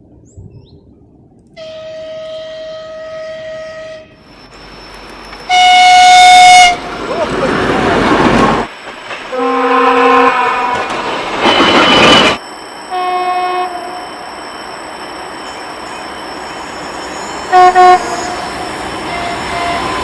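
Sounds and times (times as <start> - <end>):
passing train rumble: 0.9 - 20.0
locomotive air horn blasts: 1.6 - 4.2, 5.5 - 6.9, 9.3 - 10.9, 12.9 - 14.0, 17.5 - 20.0.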